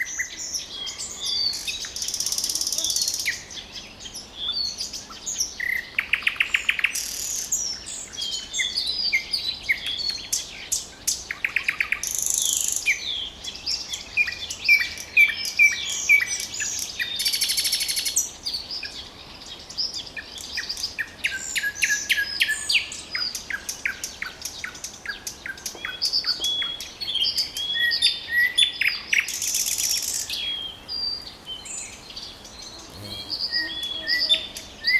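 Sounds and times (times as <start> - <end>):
nightingale singing: 25.5 - 34.9.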